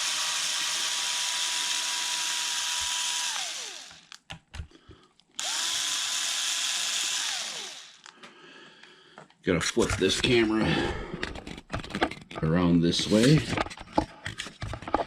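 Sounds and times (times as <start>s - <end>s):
power driver whining: 0.0s - 4.2s, 5.4s - 8.2s.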